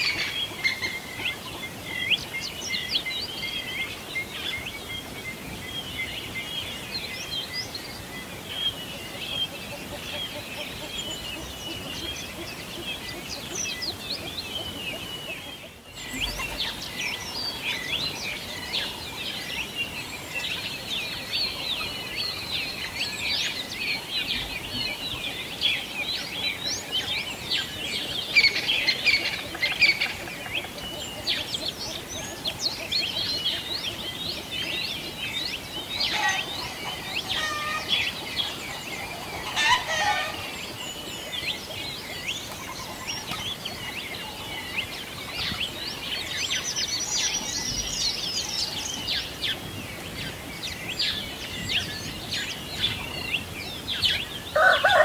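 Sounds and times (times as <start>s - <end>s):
songbirds chirping and trilling: 0.0s - 55.0s
chicken calls: 24.0s - 45.9s, 52.8s - 55.0s.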